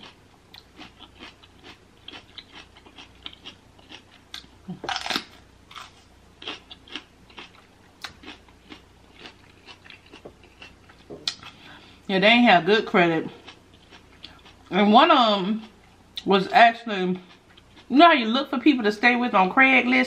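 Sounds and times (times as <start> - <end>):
chewing with wet mouth clicks: 0.0 - 4.5, 6.4 - 11.6, 13.4 - 14.6, 17.3 - 17.9
crunchy bite: 0.0 - 11.4.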